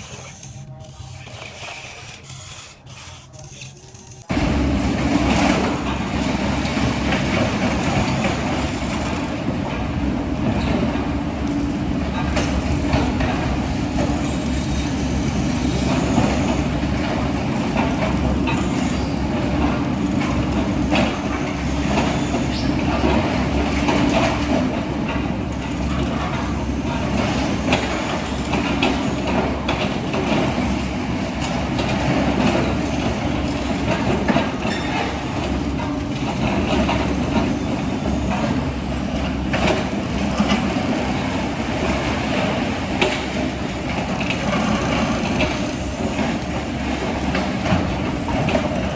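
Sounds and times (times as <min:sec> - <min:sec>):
machinery humming: 0:00.0 - 0:48.9
clicks and rattles: 0:39.2 - 0:48.9.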